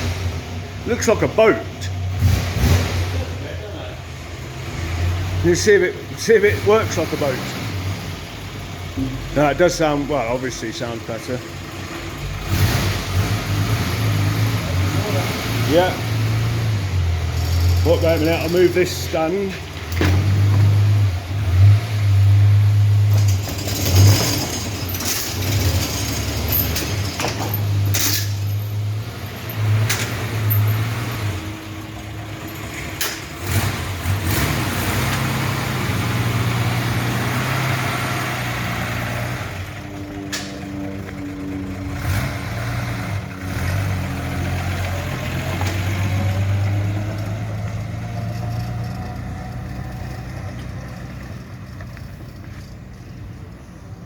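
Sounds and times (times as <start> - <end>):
car engine revving: 0.0 - 53.3.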